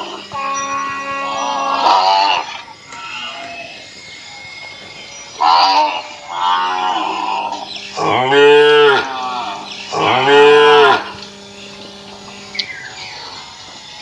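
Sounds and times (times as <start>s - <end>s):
cow mooing: 0.0s - 3.9s, 5.3s - 11.3s.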